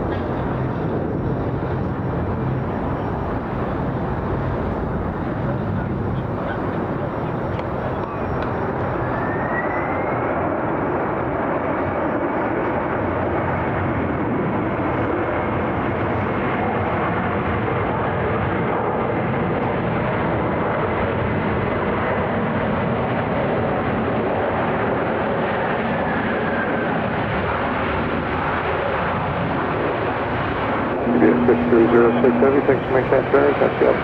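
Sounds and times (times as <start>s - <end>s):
faint high whine: 0.0s - 10.2s, 30.2s - 34.0s
jet engine noise: 0.0s - 13.3s, 27.4s - 34.0s.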